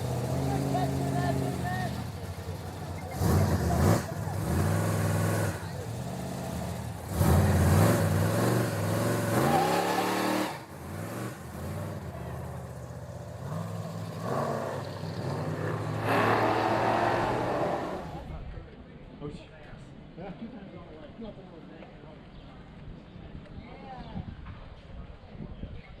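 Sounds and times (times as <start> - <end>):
car engine revving: 0.0 - 18.3.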